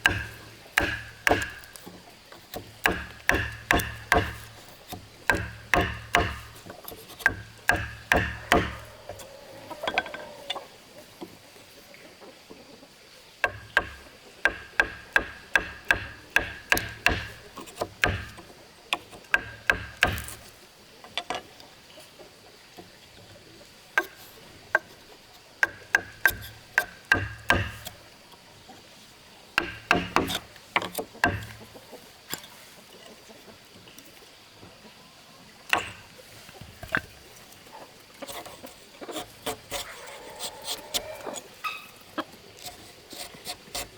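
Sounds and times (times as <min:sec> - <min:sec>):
hammer blows on wood: 0:00.0 - 0:01.7, 0:02.6 - 0:06.6, 0:07.2 - 0:09.2, 0:13.4 - 0:18.4, 0:29.6 - 0:30.4.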